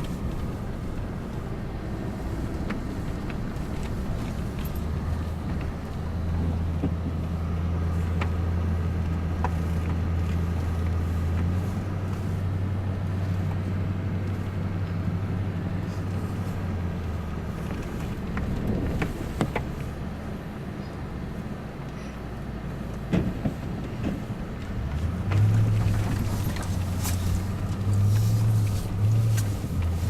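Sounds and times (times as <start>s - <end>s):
vehicle engine humming: 0.0s - 30.0s.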